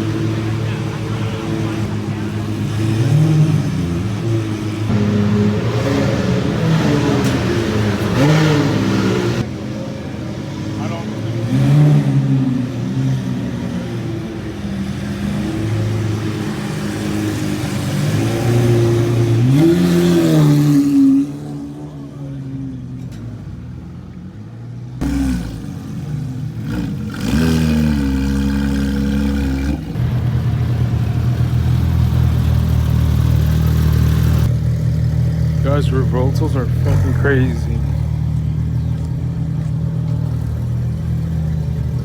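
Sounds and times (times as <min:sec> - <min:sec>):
sports car engines idling: 0:00.0 - 0:19.7, 0:21.4 - 0:42.0
deep loud engine rumble: 0:21.4 - 0:42.0
engine throttle blips: 0:25.0 - 0:42.0.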